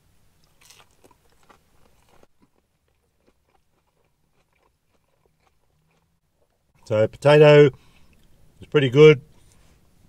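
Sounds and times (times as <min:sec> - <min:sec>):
man chewing food: 0:00.4 - 0:06.7.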